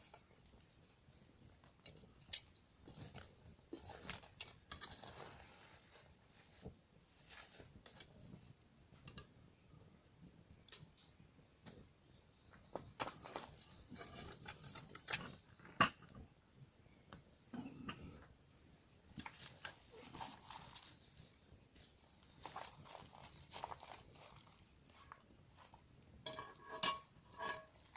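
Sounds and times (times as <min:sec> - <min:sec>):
bonfire crackling and popping: 0:00.0 - 0:05.4, 0:12.8 - 0:27.9.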